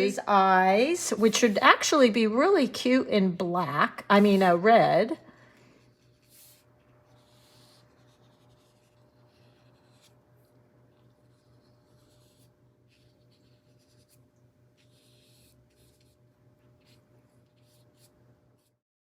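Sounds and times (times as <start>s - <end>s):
low electrical hum: 0.0s - 18.8s
brush stroking across paper: 1.0s - 2.0s, 4.1s - 4.7s, 5.8s - 18.8s.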